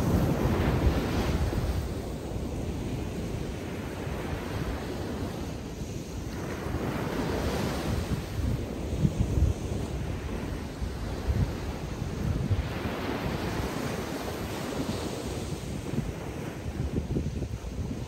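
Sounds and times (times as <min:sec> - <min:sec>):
surf breaking on beach: 0:00.0 - 0:18.0
wind rumbling on microphone: 0:00.0 - 0:18.0.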